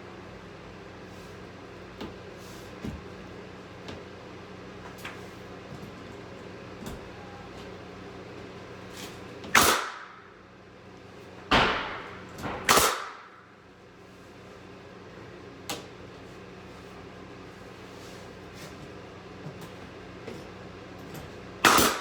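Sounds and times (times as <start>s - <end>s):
nail gun firing: 9.5s - 10.2s, 11.5s - 13.4s, 21.6s - 22.0s.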